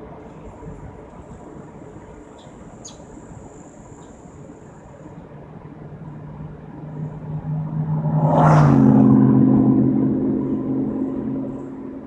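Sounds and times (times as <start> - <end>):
car engine accelerating: 5.7 - 12.0.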